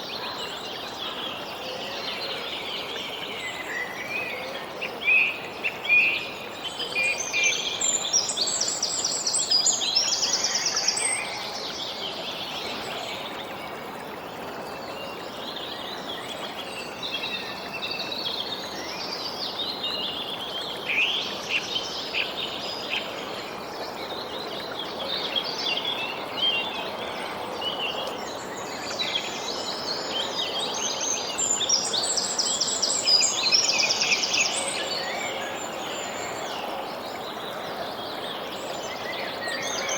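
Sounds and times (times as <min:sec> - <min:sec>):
steady background hiss: 0:00.0 - 0:39.9.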